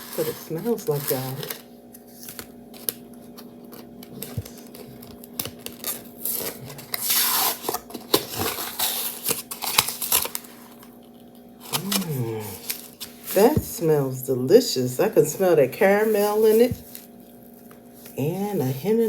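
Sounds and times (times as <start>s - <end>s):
steady low hum: 10.4s - 19.0s.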